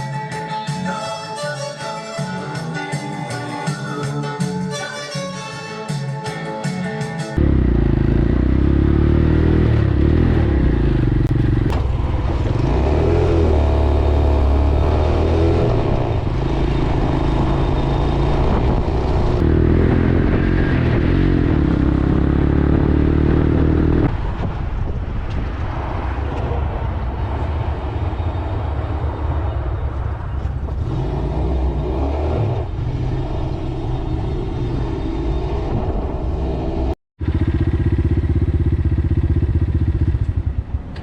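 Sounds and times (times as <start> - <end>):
motorcycle engine revving: 7.4 - 24.2, 30.6 - 40.8.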